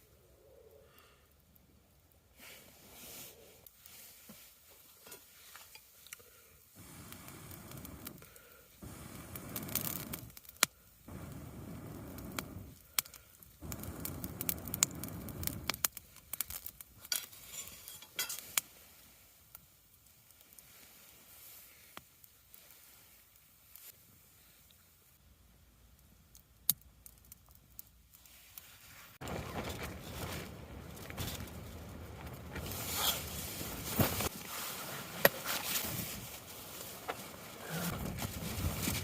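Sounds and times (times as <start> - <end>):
cookware clinks and scrapes: 17.2 - 18.4.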